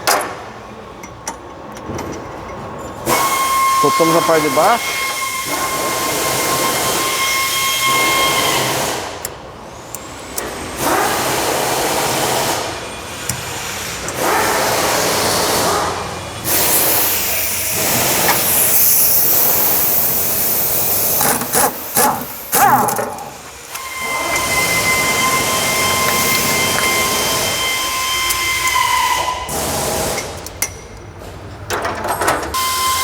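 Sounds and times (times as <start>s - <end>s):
pneumatic air tool running: 3.0s - 30.6s, 32.5s - 33.0s.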